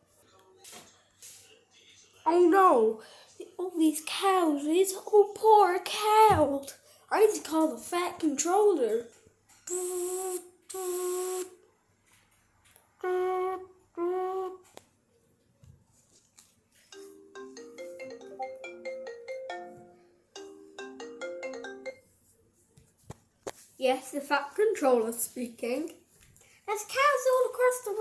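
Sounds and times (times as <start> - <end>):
marimba ringtone melody: 16.9 - 22.0
phone ringing tone: 17.0 - 22.0.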